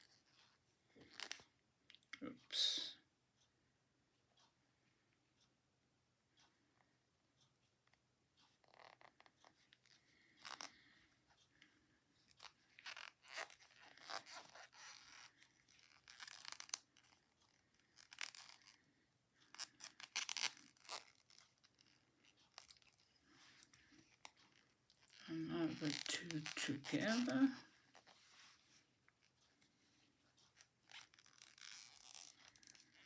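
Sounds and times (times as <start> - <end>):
yarn rustling: 19.5 - 33.0
knitting needles clicking: 30.4 - 33.0.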